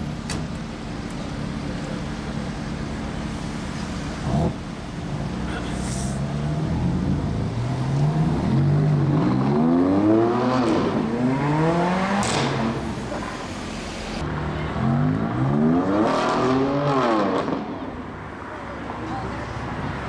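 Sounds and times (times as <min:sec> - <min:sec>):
car engine accelerating hard: 0:04.2 - 0:13.4.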